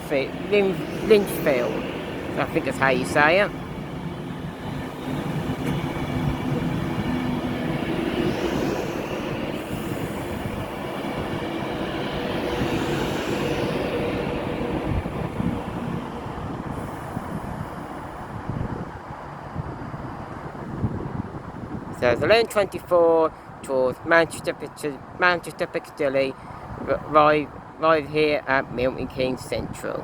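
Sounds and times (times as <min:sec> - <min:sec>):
electric train running: 0:00.0 - 0:18.4
high train whines: 0:00.0 - 0:22.4.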